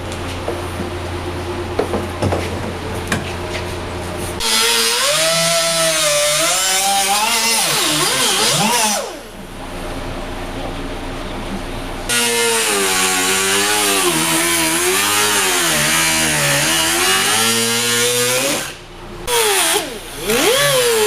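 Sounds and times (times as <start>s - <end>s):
shop hum: 0.0s - 21.0s
power tool motor whine: 12.1s - 21.0s.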